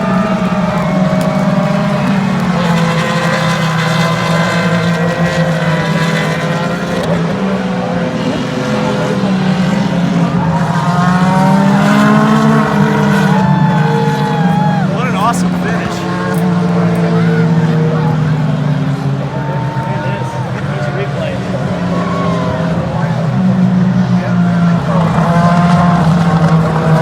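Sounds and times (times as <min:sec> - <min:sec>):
race car engines passing: 0:00.0 - 0:27.0.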